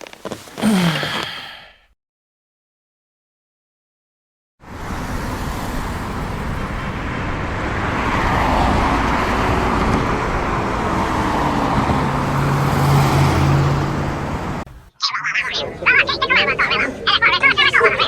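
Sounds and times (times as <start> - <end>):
road traffic noise: 4.6 - 18.0.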